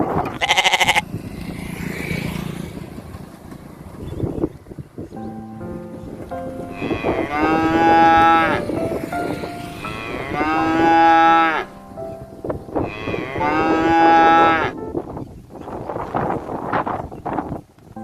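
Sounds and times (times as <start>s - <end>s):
cow mooing: 6.8s - 8.6s, 9.8s - 11.7s, 12.8s - 14.8s.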